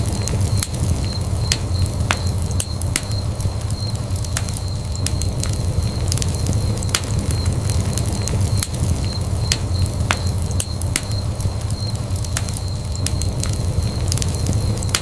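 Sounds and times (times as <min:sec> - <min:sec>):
burning wood crackling and popping: 0:00.0 - 0:15.0
low rumble of flames: 0:00.0 - 0:15.0.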